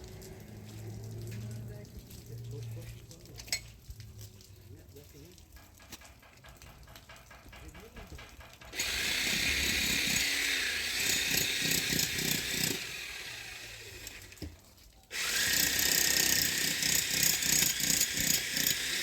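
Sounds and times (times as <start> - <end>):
power tool cutting into wall: 8.6 - 14.5, 15.1 - 19.0.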